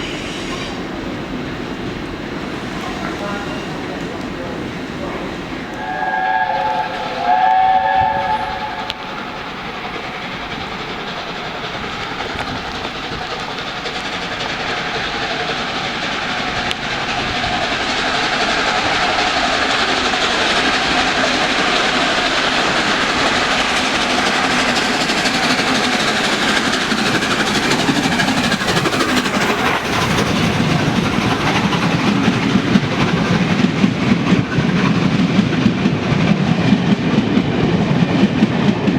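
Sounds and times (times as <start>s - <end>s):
train running noise: 0.0s - 38.9s
wheels clicking over rail joints: 2.8s - 38.9s
steam locomotive whistle: 5.7s - 10.3s.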